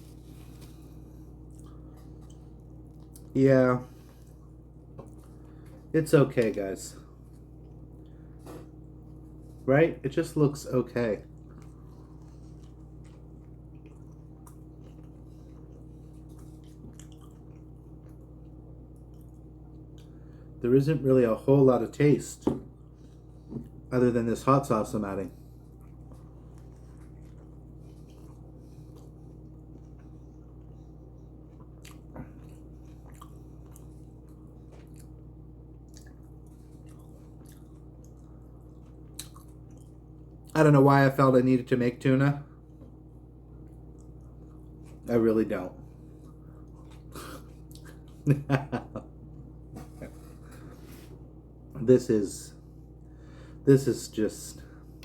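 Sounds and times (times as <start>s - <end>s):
wet chewing sounds: 0.0s - 9.6s, 11.2s - 20.4s, 25.3s - 40.6s, 42.6s - 45.1s, 45.9s - 48.5s
low electrical hum: 0.0s - 55.0s.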